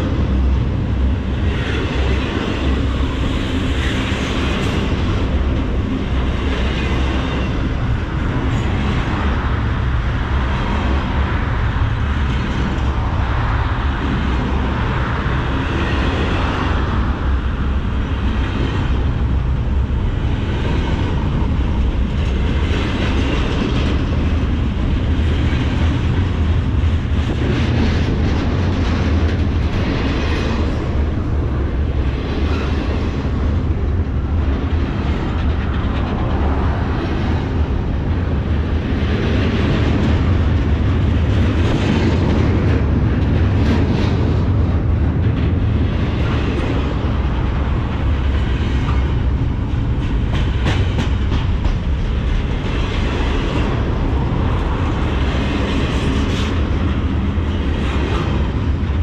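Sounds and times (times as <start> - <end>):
train wheels rumbling on rail: 0.0 - 59.0
wheels clacking over rail joints: 17.7 - 59.0.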